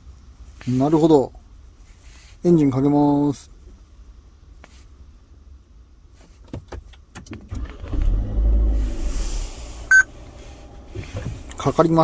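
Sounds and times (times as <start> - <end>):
car engine starting and running: 7.1 - 12.0
short beep: 9.9 - 10.1.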